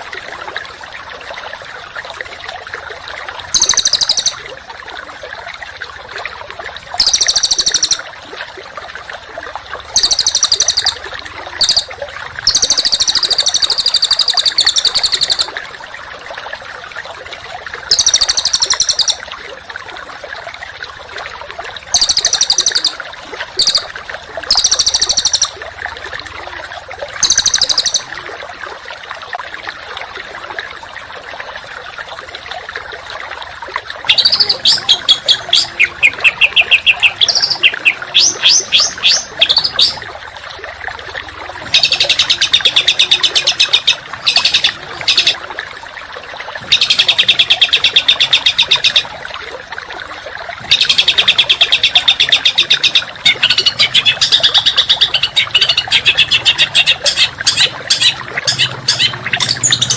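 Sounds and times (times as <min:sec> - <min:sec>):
songbird singing harsh bursts: 0:34.1 - 0:40.0.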